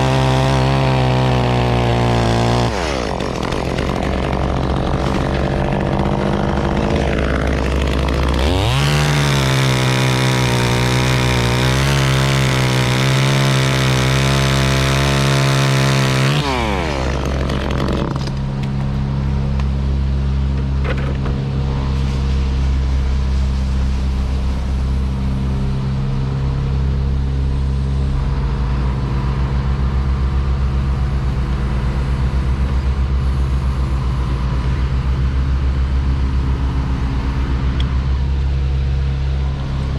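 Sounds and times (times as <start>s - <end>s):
chainsaw revving: 0.0s - 18.4s
machine engine idling: 2.6s - 10.1s.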